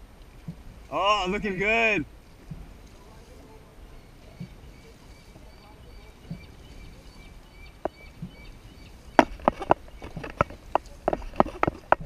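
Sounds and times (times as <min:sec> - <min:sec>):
paddles knocking against boat: 0:00.4 - 0:00.8, 0:02.3 - 0:03.0, 0:04.1 - 0:12.0.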